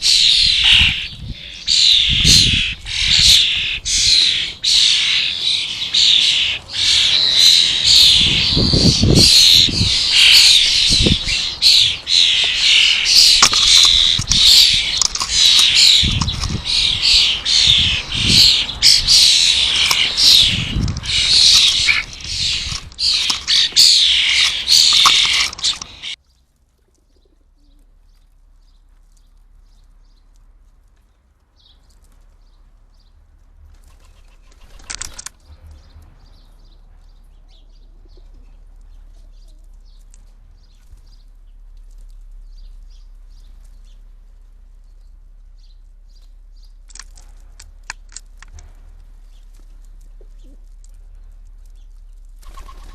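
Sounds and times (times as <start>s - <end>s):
small birds chirping: 0.0s - 33.2s, 33.9s - 52.9s.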